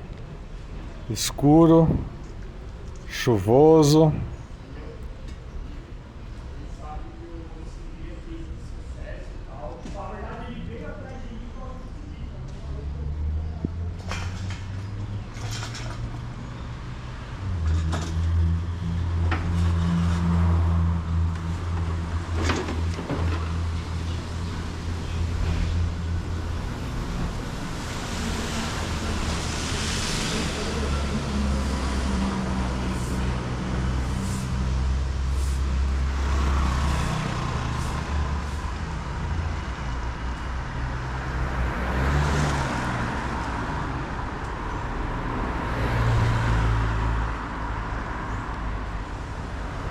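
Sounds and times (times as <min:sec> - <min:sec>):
cars passing: 0:00.0 - 0:06.3, 0:19.0 - 0:49.9
low rumble of engines: 0:00.0 - 0:09.7, 0:11.7 - 0:49.9.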